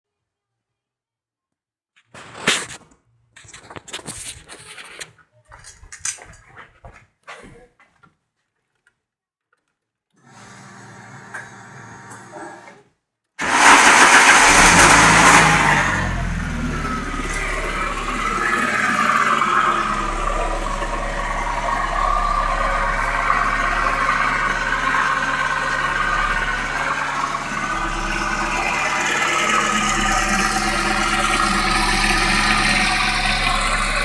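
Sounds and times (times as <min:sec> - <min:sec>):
car engine starting and idling: 0:13.4 - 0:34.0.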